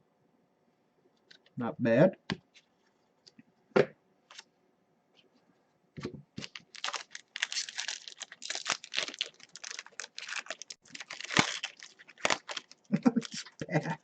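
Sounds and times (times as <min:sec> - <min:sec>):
foil wrapper tearing and crinkling: 0:06.4 - 0:13.6.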